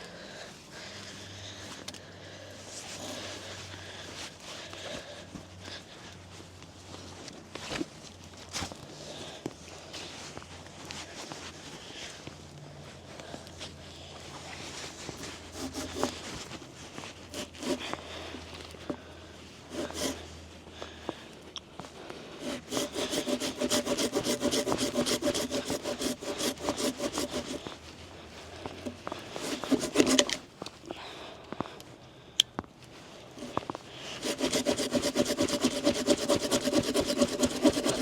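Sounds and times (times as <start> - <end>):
hand saw cutting wood: 15.1 - 19.0, 19.6 - 20.3, 22.4 - 27.8, 28.7 - 30.5, 33.4 - 38.0.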